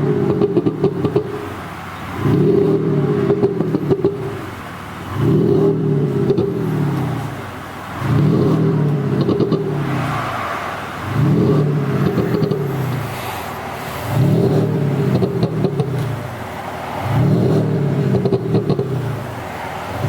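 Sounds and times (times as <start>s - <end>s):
exhaust pops and crackles: 0.0s - 9.8s, 14.1s - 19.4s
car exhaust throttle blips: 0.0s - 20.0s.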